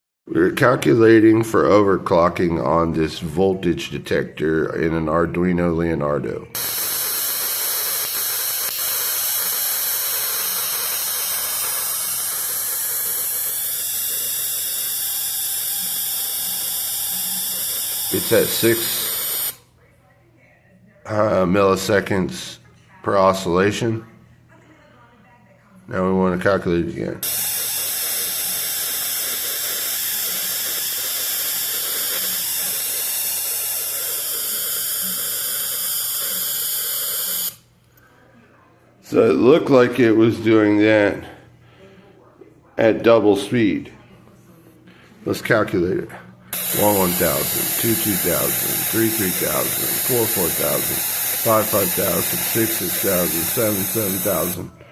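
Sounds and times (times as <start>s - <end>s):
high-pitched electronic whine: 6.6s - 19.6s, 27.2s - 37.6s, 46.5s - 54.7s
loud hiss: 6.6s - 19.6s, 27.2s - 37.6s, 46.5s - 54.7s.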